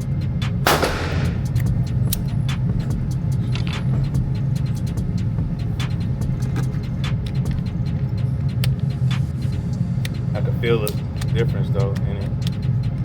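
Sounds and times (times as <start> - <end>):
steady low rumble: 0.6 - 3.4
faint gunshot cracks: 0.7 - 1.7.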